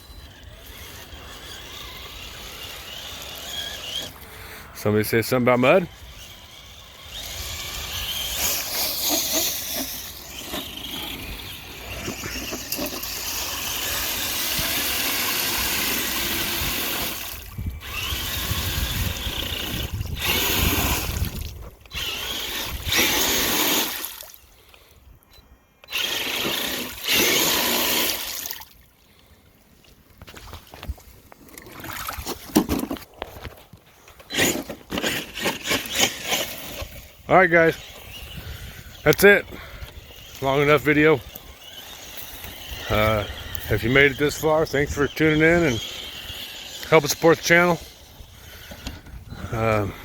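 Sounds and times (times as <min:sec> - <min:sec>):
tires churning and splashing: 0:00.0 - 0:24.4, 0:25.9 - 0:28.8, 0:30.6 - 0:32.5, 0:40.0 - 0:48.7
rc truck motor: 0:00.0 - 0:29.2, 0:32.6 - 0:50.0.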